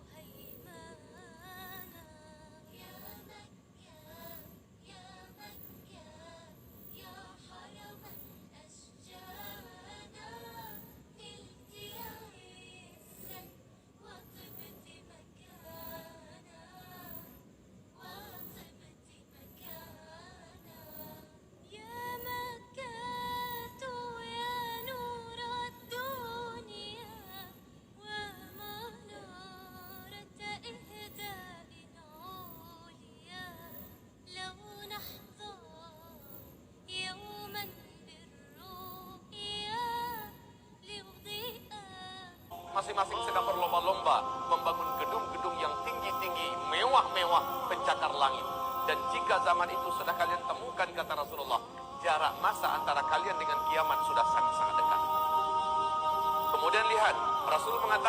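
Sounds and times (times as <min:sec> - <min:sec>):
person singing ornamented phrases: 0:09.1 - 0:12.4, 0:42.5 - 0:58.0.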